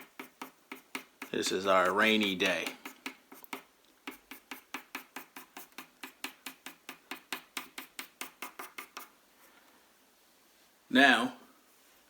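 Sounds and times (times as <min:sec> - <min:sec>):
pencil strokes on paper: 0:00.0 - 0:09.2.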